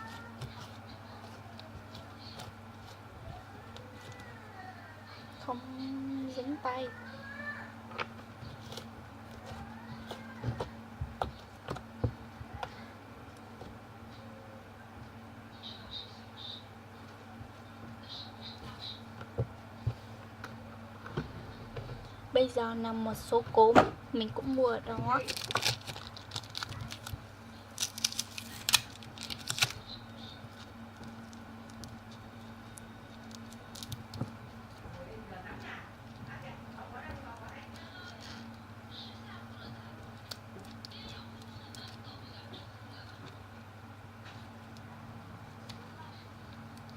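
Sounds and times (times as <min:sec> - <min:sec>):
faint steady hum: 0:00.0 - 0:46.9
plastic packet clicks and crinkles: 0:25.2 - 0:29.9, 0:30.5 - 0:34.8, 0:40.1 - 0:42.0.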